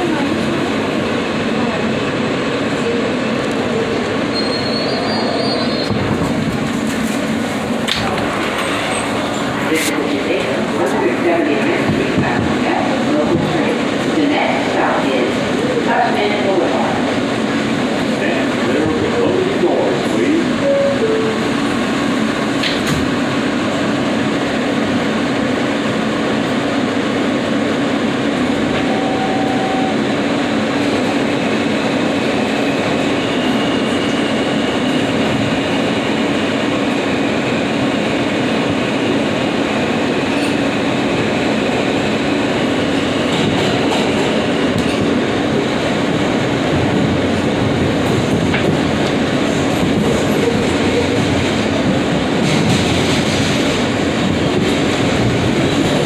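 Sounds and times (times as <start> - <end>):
subway train rumbling on rails: 0.0 - 56.0
high wheel squeal: 4.3 - 6.0.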